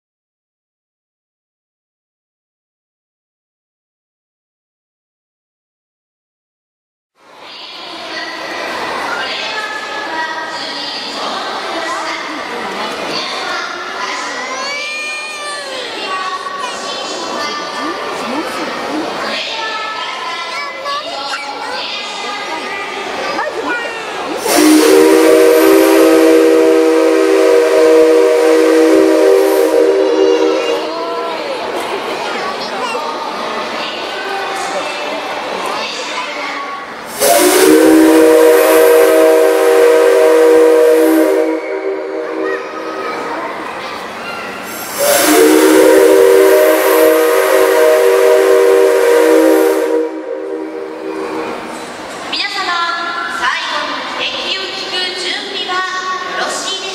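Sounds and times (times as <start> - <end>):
steam locomotive whistle blast: 24.4 - 31.0, 37.1 - 43.0, 44.6 - 51.8.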